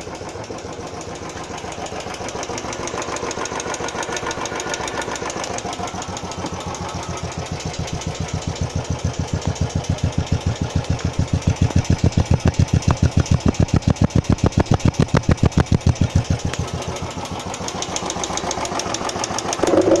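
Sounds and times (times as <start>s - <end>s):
motorcycle engine idling: 0.0s - 20.0s
tappet ticking: 5.8s - 20.0s.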